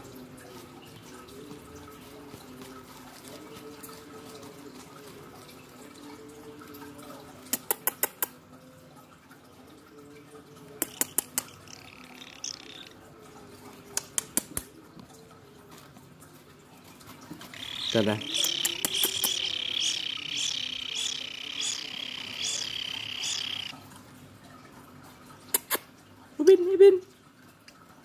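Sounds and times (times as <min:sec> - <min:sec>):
faint steady hum: 0:17.5 - 0:25.4.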